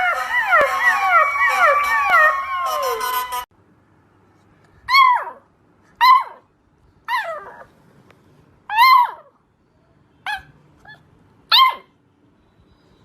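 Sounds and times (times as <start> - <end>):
puppies whining and howling: 0.0 - 3.5, 7.1 - 7.7
puppy high-pitched cries: 0.0 - 3.5, 4.9 - 6.5, 7.1 - 7.7, 8.7 - 9.4, 10.2 - 11.9.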